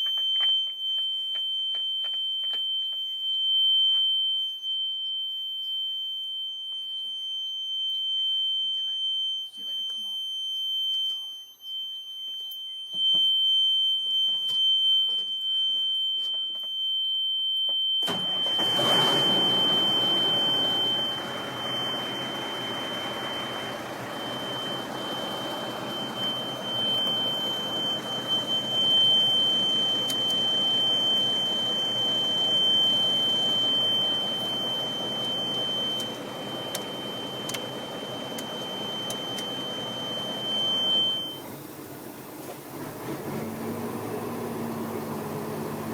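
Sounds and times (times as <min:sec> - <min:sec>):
truck engine running: 0:18.1 - 0:41.2.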